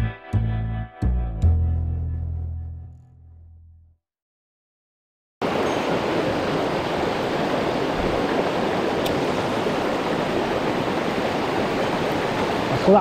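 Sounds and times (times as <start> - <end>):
mountain stream rushing: 5.4 - 13.0.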